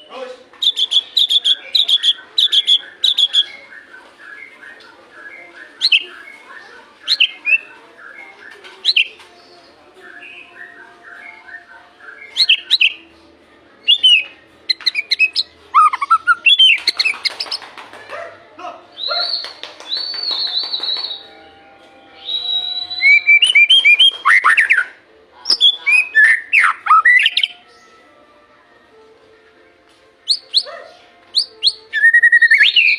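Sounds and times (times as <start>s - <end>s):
bird singing whistled phrases: 0.6s - 9.1s, 10.0s - 13.0s, 13.8s - 17.1s, 19.0s - 21.3s, 22.2s - 27.6s, 30.3s - 30.7s, 31.4s - 32.9s.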